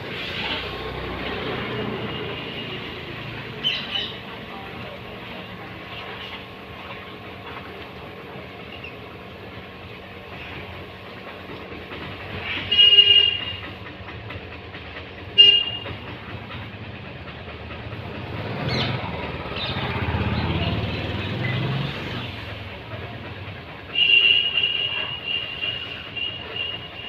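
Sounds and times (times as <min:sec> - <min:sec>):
horn toots: 0:12.5 - 0:13.7, 0:15.4 - 0:16.0.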